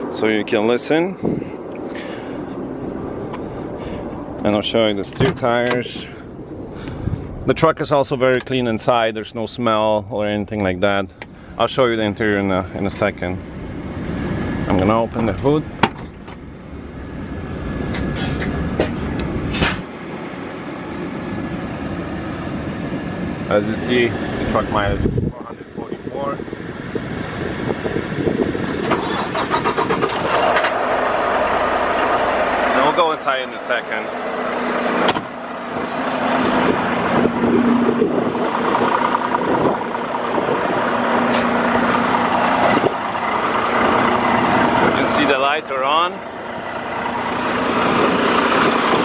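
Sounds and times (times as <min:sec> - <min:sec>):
low rumble: 0:00.0 - 0:08.9, 0:29.8 - 0:49.0
truck diesel engine idling: 0:29.0 - 0:49.0.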